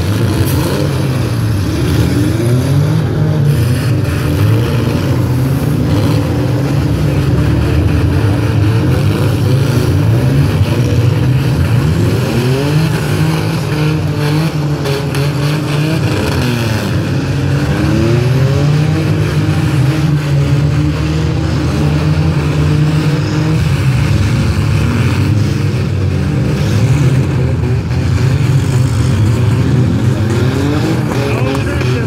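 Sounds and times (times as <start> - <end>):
car engines droning and revving: 0.0 - 32.0.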